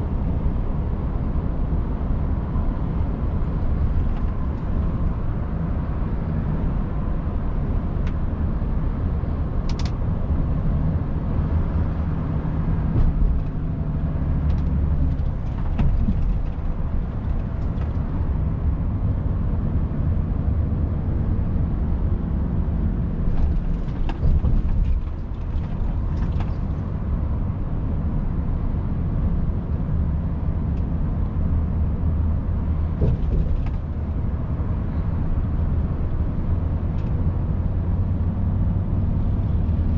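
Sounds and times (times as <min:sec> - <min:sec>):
road and tyre noise: 0:00.0 - 0:39.9
cab clicks and creaks: 0:14.3 - 0:18.3, 0:23.2 - 0:26.9.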